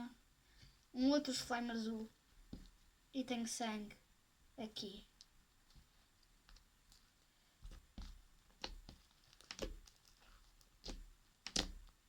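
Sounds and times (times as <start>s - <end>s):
slime squishing by hand: 5.0s - 12.0s.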